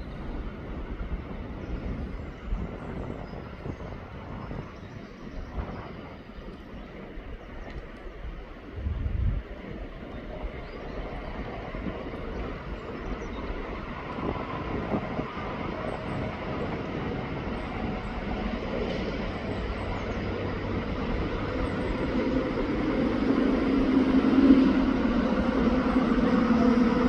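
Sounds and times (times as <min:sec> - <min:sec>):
engine drone: 0:15.8 - 0:27.0.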